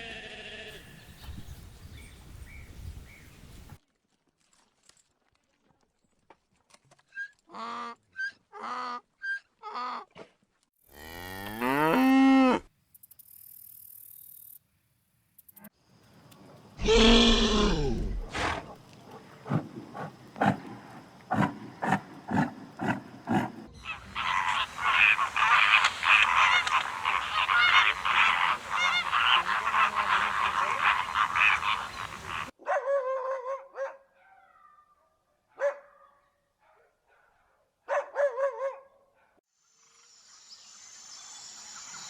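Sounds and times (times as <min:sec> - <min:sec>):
animals calling: 0:16.8 - 0:32.5.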